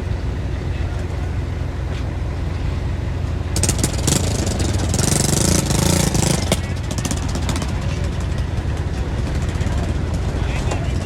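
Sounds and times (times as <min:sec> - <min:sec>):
diesel machinery rumbling: 0:00.0 - 0:11.0.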